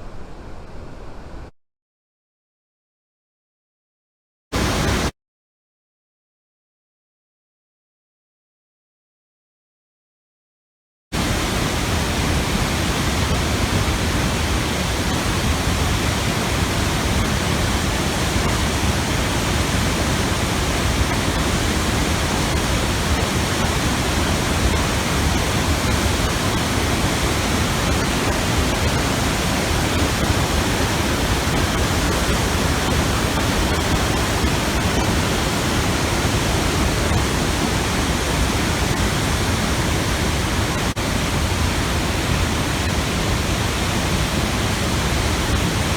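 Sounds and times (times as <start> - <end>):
waterfall rushing: 4.6 - 5.1, 11.2 - 45.9.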